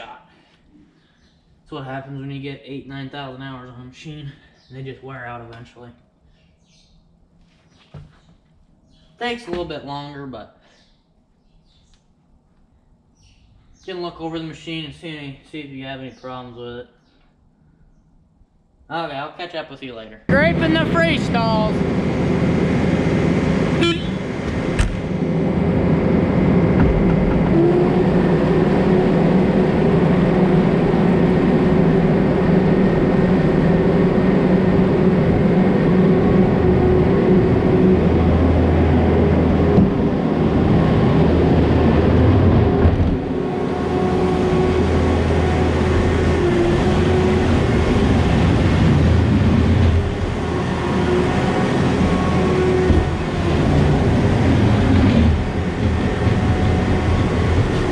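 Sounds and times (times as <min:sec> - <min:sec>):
loader engine running: 0:20.3 - 0:57.9.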